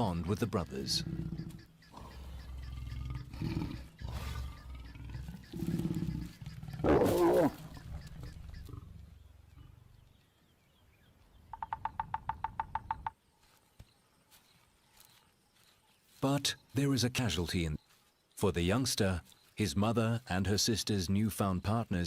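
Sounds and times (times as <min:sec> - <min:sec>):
lions growling: 0:00.6 - 0:10.2
lion snarl: 0:00.9 - 0:09.8.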